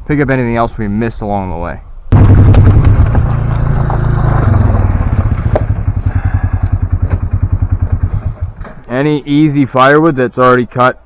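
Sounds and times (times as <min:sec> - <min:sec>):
engine putter: 0:02.1 - 0:08.9.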